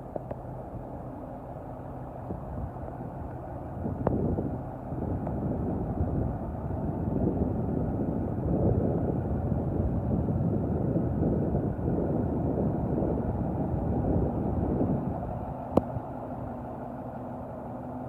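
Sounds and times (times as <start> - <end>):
truck diesel engine running: 0.0 - 18.0.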